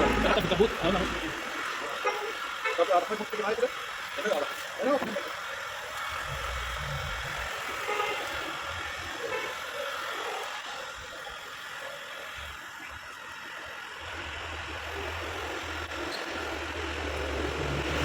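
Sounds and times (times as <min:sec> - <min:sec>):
vehicle engine rumbling: 0:00.0 - 0:01.8, 0:06.0 - 0:09.0, 0:14.1 - 0:18.0
street noise: 0:00.0 - 0:18.0.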